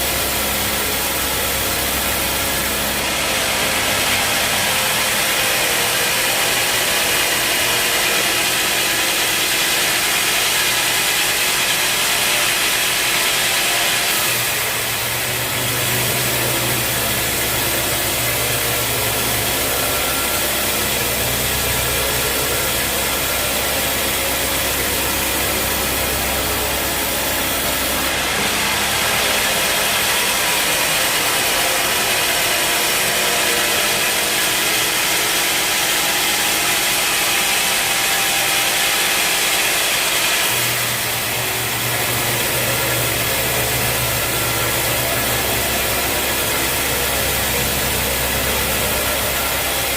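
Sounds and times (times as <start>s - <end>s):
sawmill machinery running: 0.0s - 49.9s
deep hum: 14.2s - 38.9s.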